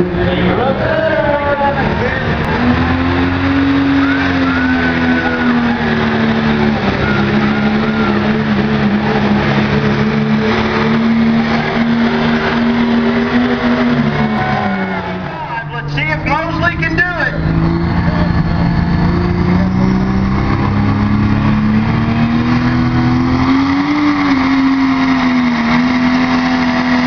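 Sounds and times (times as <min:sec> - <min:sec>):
truck engine under heavy load: 0:00.0 - 0:27.0.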